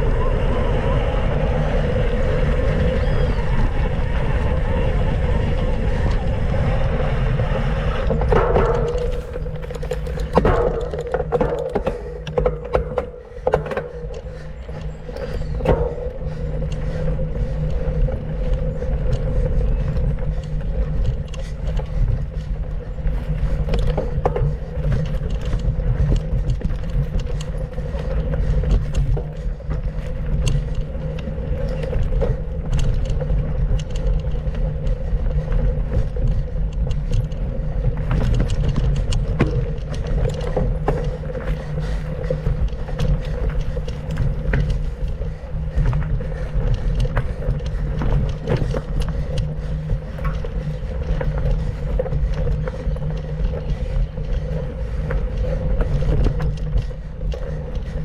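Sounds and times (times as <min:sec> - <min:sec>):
wind on microphone: 0:00.0 - 0:12.5
bike clicking and rattling: 0:00.0 - 0:58.0
tyres rumbling on dirt trail: 0:00.0 - 0:58.0.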